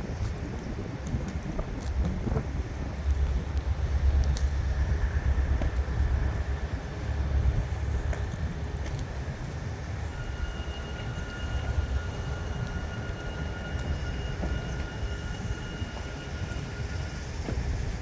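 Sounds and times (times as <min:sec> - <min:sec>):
diesel truck engine rumble: 0:00.0 - 0:18.0
faint high whine: 0:09.4 - 0:18.0.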